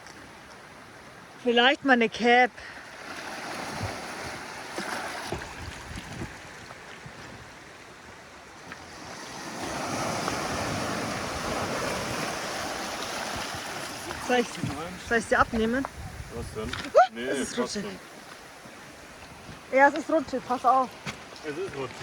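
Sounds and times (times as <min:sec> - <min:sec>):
waves washing onto shore: 0:02.6 - 0:22.0
wind on microphone: 0:05.3 - 0:07.5, 0:09.6 - 0:17.3.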